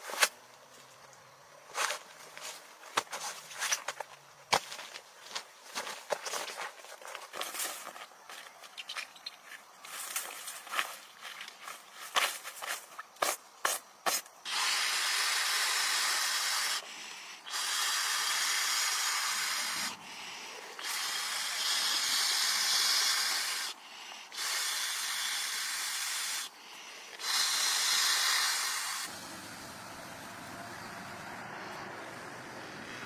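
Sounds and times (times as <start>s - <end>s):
long steady hisses: 9.2s - 33.0s.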